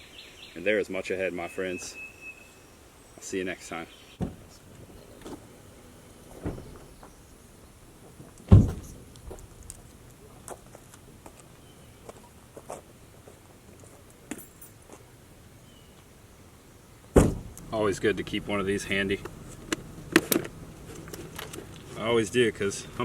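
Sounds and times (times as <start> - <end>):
handling knocks and taps: 4.2 - 5.4
loud thump: 4.2 - 5.5, 6.1 - 7.2, 8.5 - 9.6, 17.1 - 17.7.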